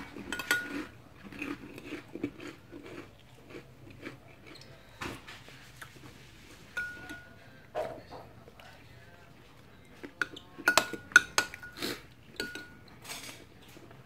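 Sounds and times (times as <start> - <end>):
person chewing: 0.0 - 4.9, 5.7 - 6.2, 10.0 - 12.7.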